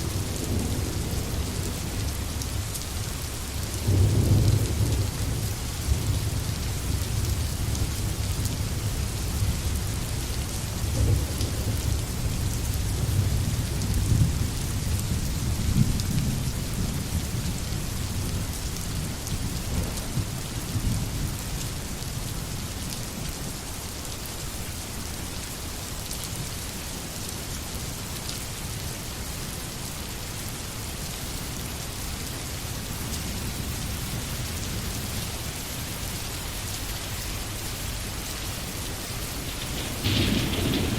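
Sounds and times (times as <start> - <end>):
rolling thunder rumble: 0.0 - 21.5, 37.7 - 40.9
heavy rain hissing: 0.0 - 40.9.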